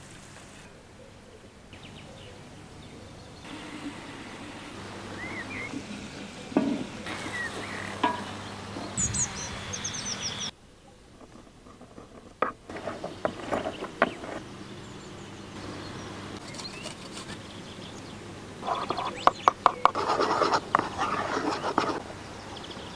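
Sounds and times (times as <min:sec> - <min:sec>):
bird chirps: 0:01.7 - 0:11.0, 0:12.9 - 0:19.9
sharp clicks and knocks: 0:11.2 - 0:14.4, 0:18.7 - 0:21.0.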